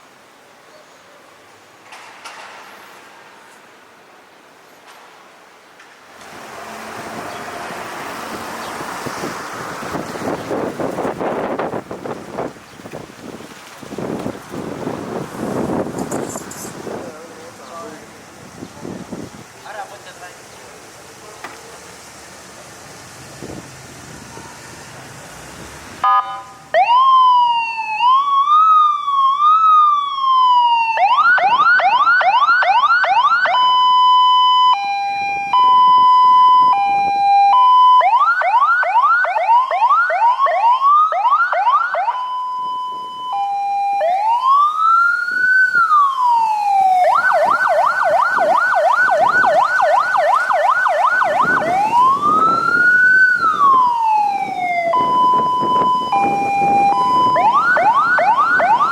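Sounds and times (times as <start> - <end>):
fire truck electronic siren: 26.0 - 58.9.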